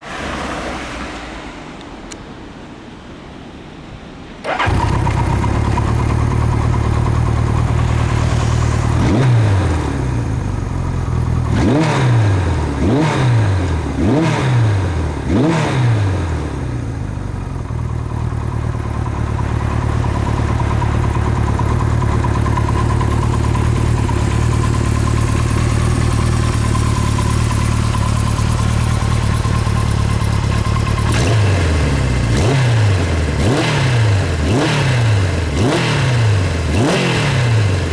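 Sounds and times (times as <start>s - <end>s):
motorcycle throttle blips: 4.4s - 16.1s, 16.8s - 37.9s
motorcycle engine idling: 4.5s - 13.0s, 16.7s - 35.7s.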